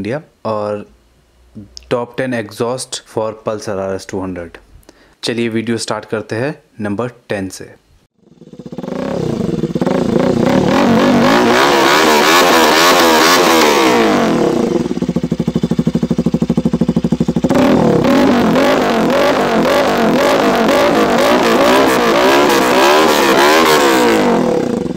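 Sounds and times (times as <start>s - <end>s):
motorcycle engine revving: 8.2s - 24.9s.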